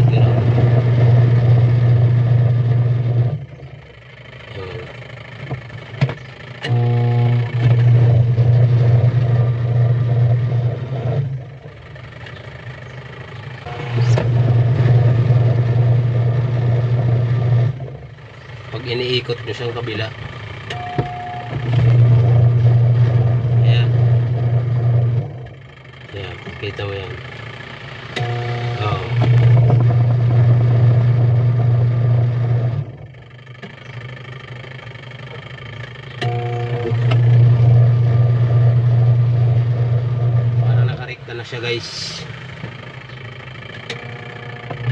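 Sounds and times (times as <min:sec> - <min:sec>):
washing machine motor humming: 0:00.0 - 0:44.9
switch click: 0:28.2 - 0:29.5, 0:36.2 - 0:37.3.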